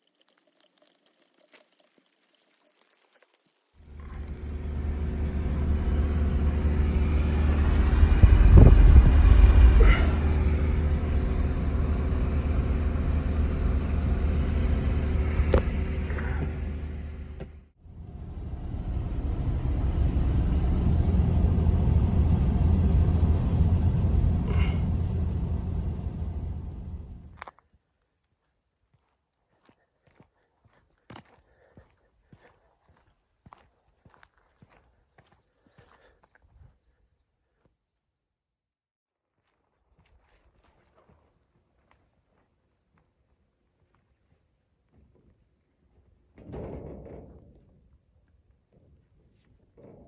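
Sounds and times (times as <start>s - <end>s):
motor vehicle engine rumble: 3.8s - 27.5s.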